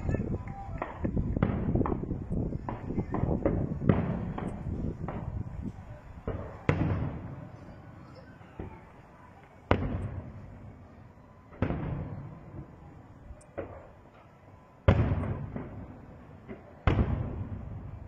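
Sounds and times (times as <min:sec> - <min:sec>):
firework shells booming: 0:00.0 - 0:09.0, 0:09.6 - 0:10.8, 0:11.5 - 0:18.0
small firework bang: 0:00.7 - 0:07.6, 0:09.7 - 0:10.3, 0:11.5 - 0:12.7.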